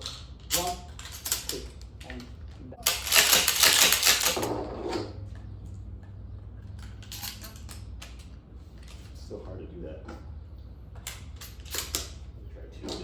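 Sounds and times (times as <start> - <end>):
shotgun shells clicking into magazine: 0.0 - 2.3, 6.8 - 8.3, 11.0 - 12.2.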